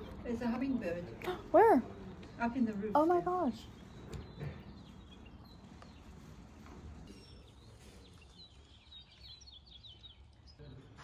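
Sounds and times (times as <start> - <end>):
small bird chirping: 3.0 - 10.7.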